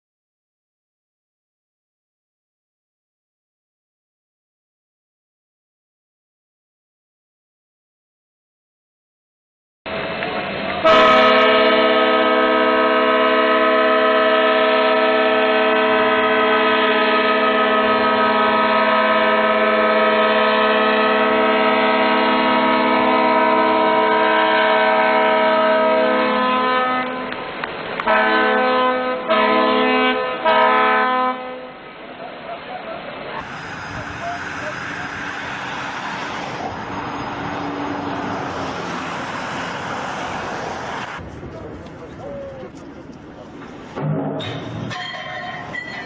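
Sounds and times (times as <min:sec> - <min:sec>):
ship's horn blasts: 0:10.8 - 0:31.8.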